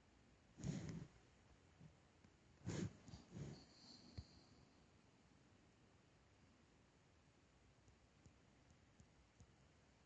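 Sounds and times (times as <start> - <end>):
throat and breath noise: 0.6 - 1.2, 2.6 - 4.6
faint breath: 2.6 - 4.9.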